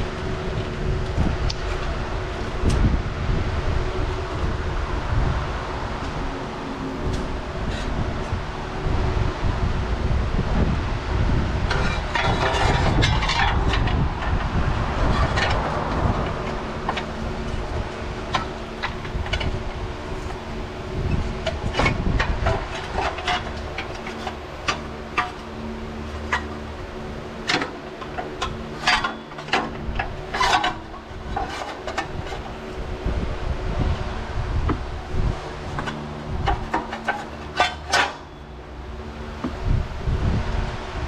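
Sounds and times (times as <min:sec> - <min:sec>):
steady low hum: 0:00.0 - 0:41.0
hand tools clicking and clinking: 0:35.8 - 0:38.3.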